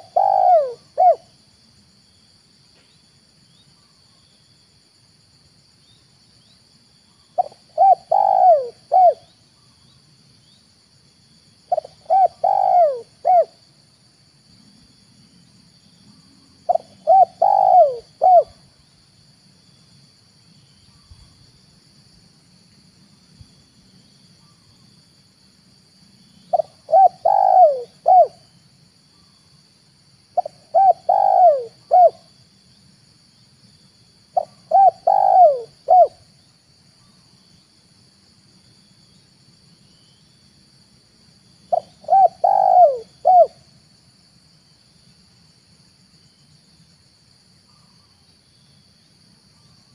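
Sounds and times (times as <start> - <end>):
dove cooing: 0.0 - 1.3, 7.4 - 9.3, 11.7 - 13.6, 16.7 - 18.6, 26.5 - 28.4, 30.4 - 32.3, 34.4 - 36.2, 41.7 - 43.6.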